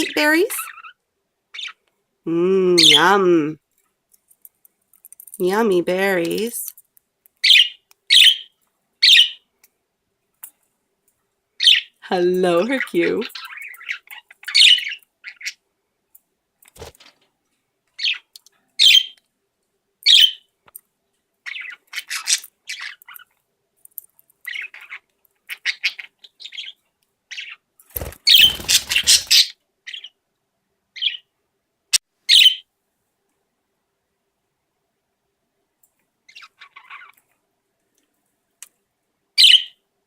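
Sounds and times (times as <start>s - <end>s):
budgerigars chirping: 0.0s - 1.8s, 7.4s - 9.4s, 11.6s - 12.0s, 12.8s - 15.6s, 18.0s - 19.2s, 20.1s - 20.4s, 21.5s - 23.3s, 24.5s - 30.2s, 32.3s - 32.6s, 39.4s - 39.8s.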